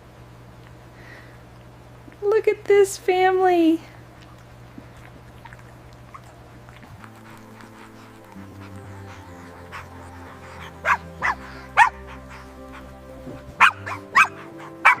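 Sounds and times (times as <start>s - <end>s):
dog yipping: 5.5s - 15.0s
soft background music: 6.1s - 15.0s.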